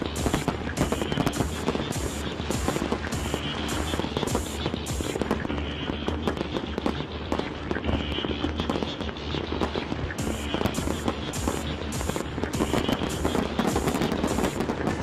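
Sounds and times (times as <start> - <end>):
fireworks bursting and crackling: 0.0 - 15.0
music with regular beat: 0.0 - 15.0.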